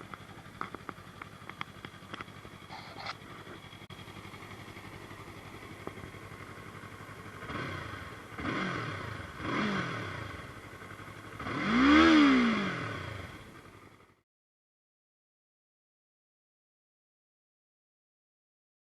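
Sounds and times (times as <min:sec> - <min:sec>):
motorcycle engine idling and revving: 0:00.0 - 0:14.2.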